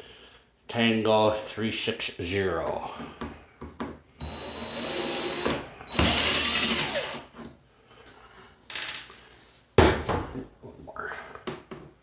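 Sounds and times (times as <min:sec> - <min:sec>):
power drill whining: 0:04.2 - 0:07.3.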